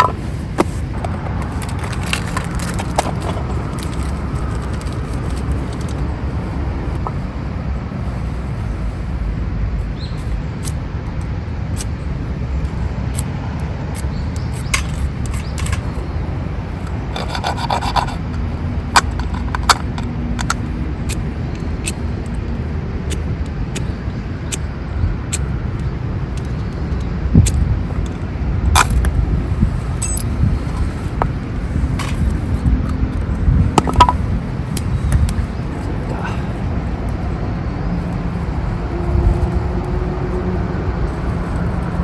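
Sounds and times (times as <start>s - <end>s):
steady low rumble: 0.0s - 42.0s
rasping hand scrapes: 17.1s - 18.5s
sharp clicks: 19.0s - 29.2s.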